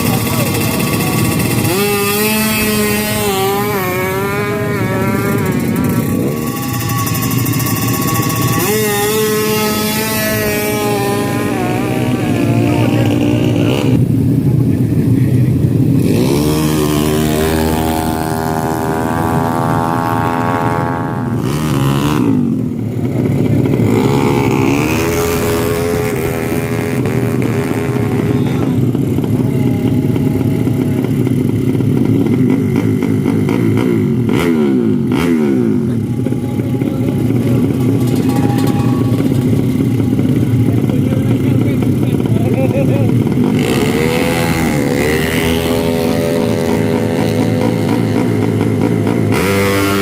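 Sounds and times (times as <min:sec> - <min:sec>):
motorcycle engines revving: 0:00.0 - 0:50.0
steady engine drone: 0:00.0 - 0:50.0.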